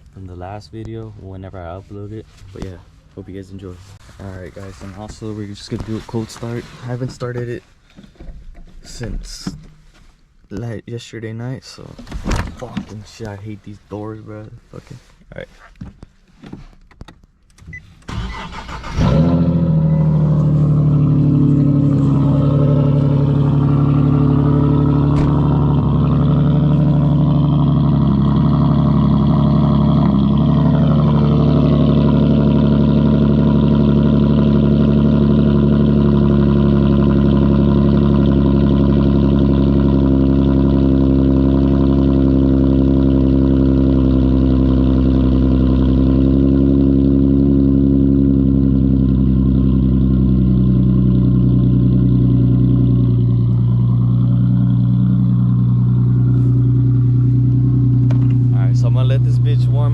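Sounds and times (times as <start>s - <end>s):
car engine idling: 0.0s - 10.5s, 12.3s - 59.9s
engine cranking: 17.4s - 20.9s.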